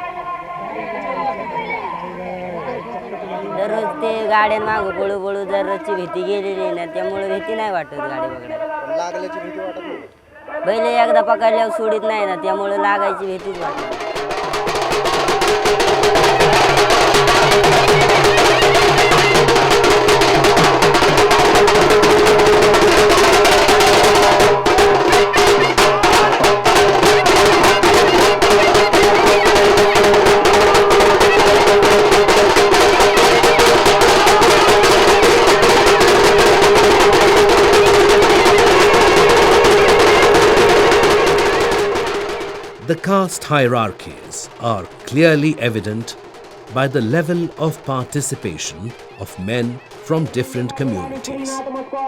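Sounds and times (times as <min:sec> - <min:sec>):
fast dense drumming: 0:13.4 - 0:51.2.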